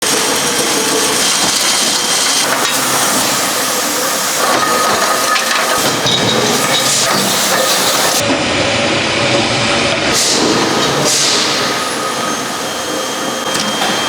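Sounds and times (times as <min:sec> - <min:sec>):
loud hissing: 0:10.1 - 0:14.0.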